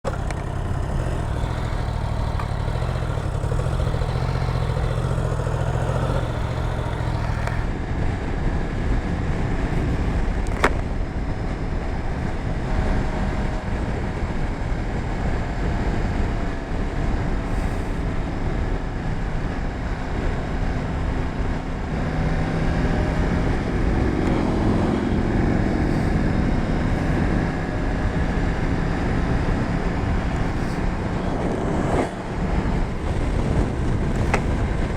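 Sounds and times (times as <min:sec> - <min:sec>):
motorcycle engine running: 0:00.0 - 0:34.9
wind rushing over microphone: 0:07.5 - 0:34.9.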